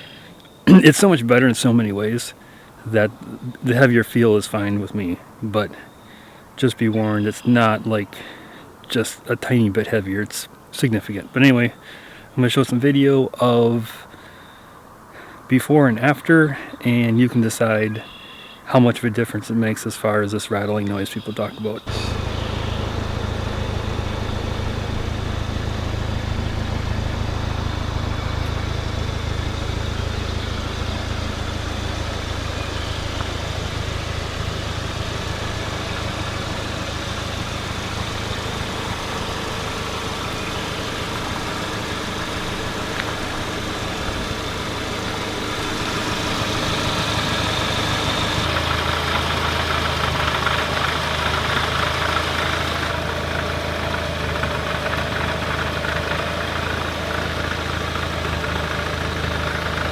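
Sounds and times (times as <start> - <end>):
car engine idling: 21.8 - 59.9.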